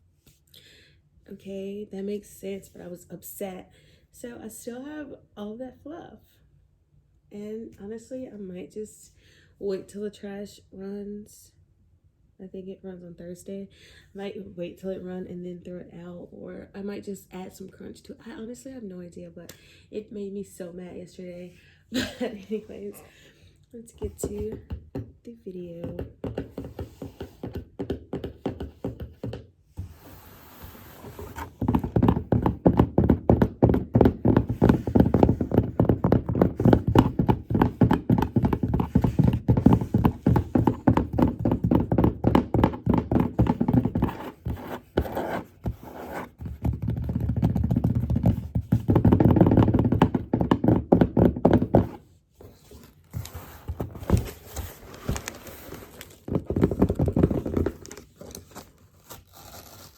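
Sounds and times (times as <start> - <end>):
hand tapping on cardboard box: 25.8 - 29.5, 31.2 - 52.0.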